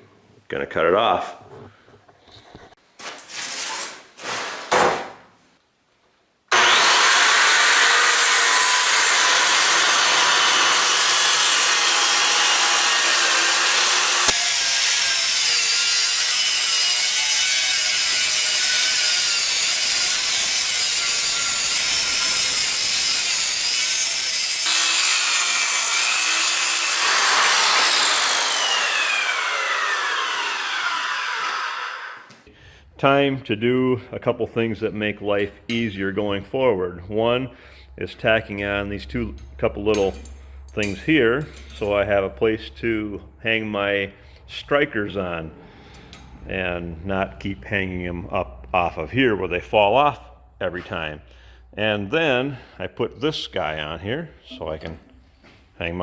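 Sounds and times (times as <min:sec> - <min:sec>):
handling noises: 0:02.3 - 0:05.3
power saw cutting wood: 0:06.5 - 0:32.4
saw blade winding down: 0:06.5 - 0:32.4.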